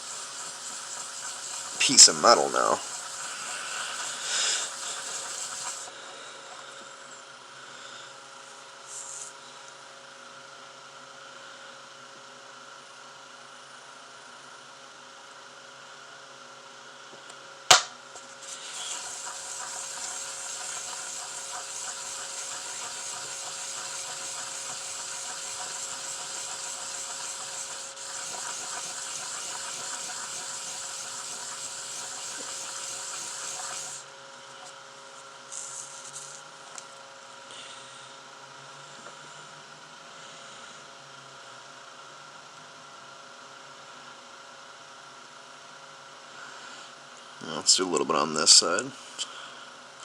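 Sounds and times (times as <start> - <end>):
wet sandpaper rubbing on metal: 0.0 - 5.9, 18.4 - 34.0.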